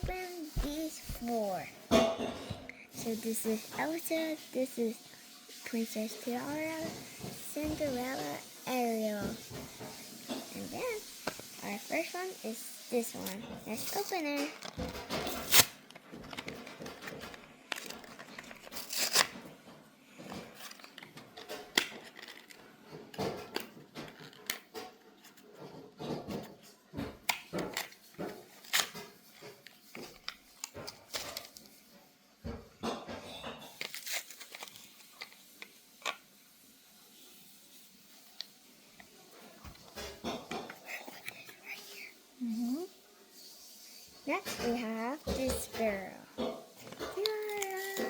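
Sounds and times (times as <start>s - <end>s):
packaging crinkling and tearing: 13.7s - 19.5s, 20.4s - 22.7s, 27.3s - 31.8s, 33.7s - 36.2s.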